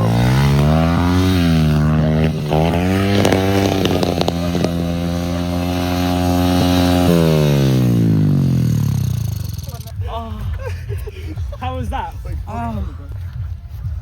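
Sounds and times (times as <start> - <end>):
motorbike engine revving: 0.0 - 10.0.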